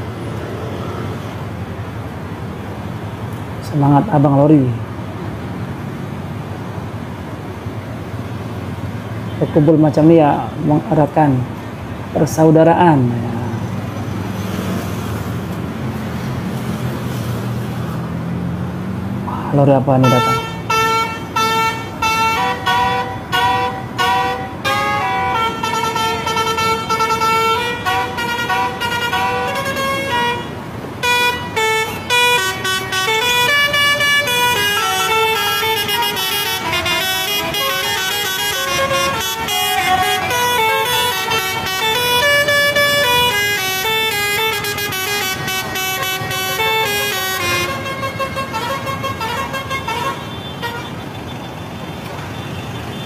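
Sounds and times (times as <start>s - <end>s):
passing traffic: 0.0s - 53.0s
musical air horns playing tunes: 20.0s - 50.9s.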